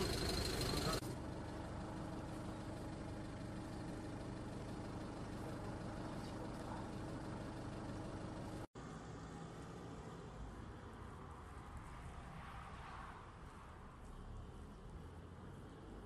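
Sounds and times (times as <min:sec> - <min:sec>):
vehicle engine idling: 0:00.0 - 0:08.7.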